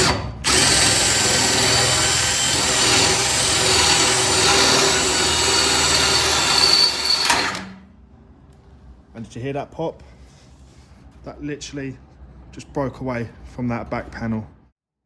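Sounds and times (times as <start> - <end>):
electric drill boring sheet steel: 0.0 - 7.8.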